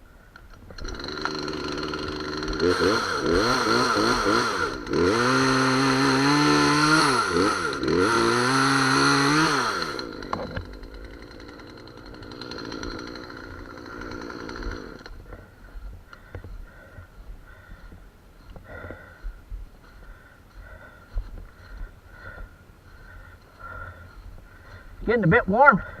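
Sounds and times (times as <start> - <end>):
chainsaw cutting wood: 0.5 - 16.8.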